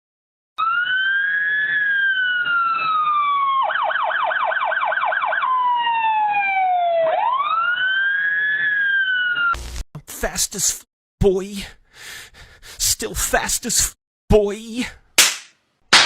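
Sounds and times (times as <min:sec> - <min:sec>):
emergency siren wailing and yelping: 0:00.6 - 0:09.6.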